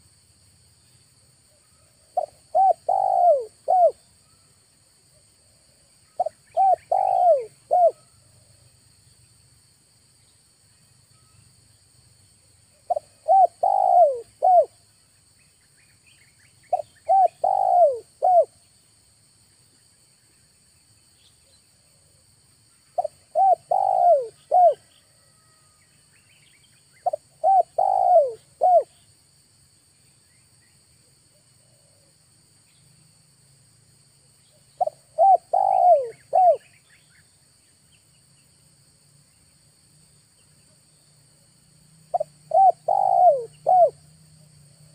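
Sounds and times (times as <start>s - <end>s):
dove cooing: 2.1s - 4.0s, 6.2s - 8.1s, 12.9s - 14.8s, 16.7s - 18.5s, 23.0s - 25.4s, 27.0s - 28.9s, 34.8s - 36.6s, 42.1s - 44.0s.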